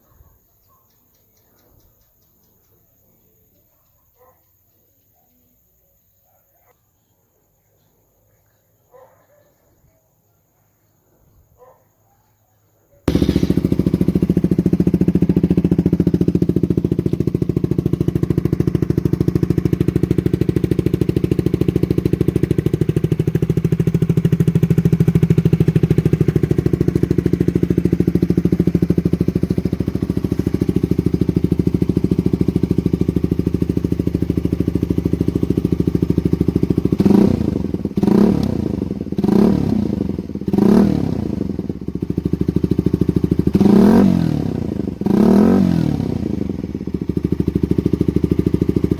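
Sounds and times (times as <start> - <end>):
motorcycle engine idling and revving: 13.1 - 48.9.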